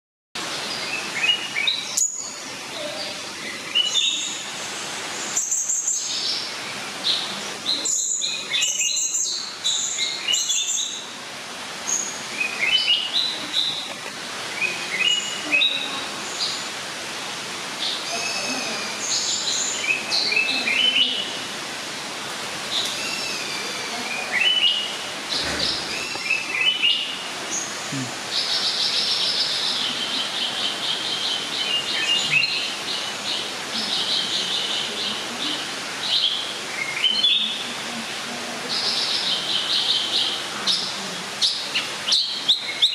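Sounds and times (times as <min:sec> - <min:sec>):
steady background hiss: 0:00.4 - 0:42.9
birds chirping: 0:22.5 - 0:37.7.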